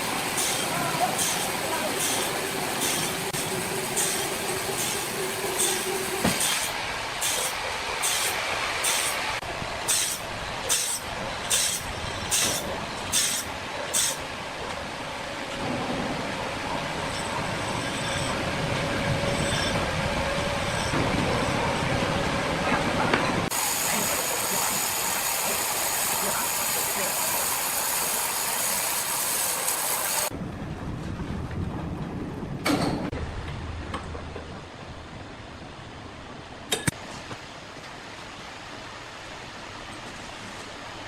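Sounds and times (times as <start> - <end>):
hissing stroke of sawmill machinery: 0.0 - 14.2, 23.5 - 30.3
sawmill machinery running with low hum: 0.0 - 30.3.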